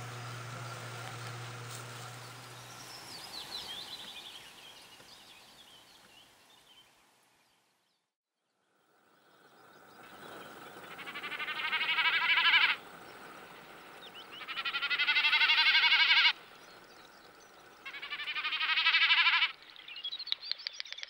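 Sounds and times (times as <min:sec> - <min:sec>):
bird rapid rolling calls: 0:10.0 - 0:19.8.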